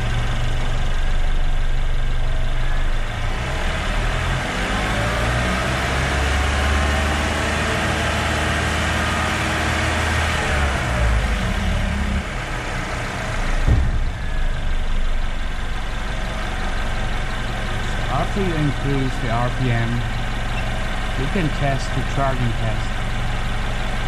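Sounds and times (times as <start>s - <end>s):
car engine revving and idling: 0.0s - 24.0s
thump: 13.5s - 15.5s.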